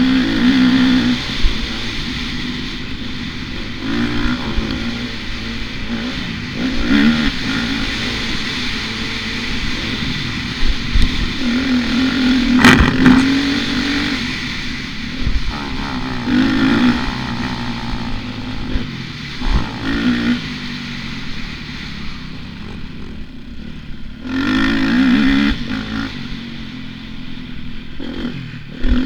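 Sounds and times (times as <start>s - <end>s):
motocross bike engine revving: 0.0s - 29.0s
sharp thump: 12.5s - 13.6s.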